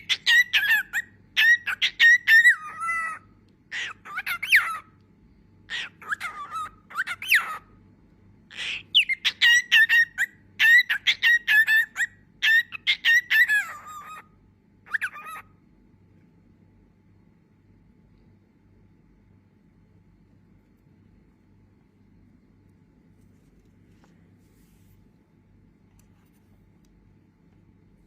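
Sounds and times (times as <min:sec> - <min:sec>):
cockatiel whistling and chirping: 0:00.0 - 0:04.8, 0:05.7 - 0:07.6, 0:08.5 - 0:14.2, 0:14.9 - 0:15.4.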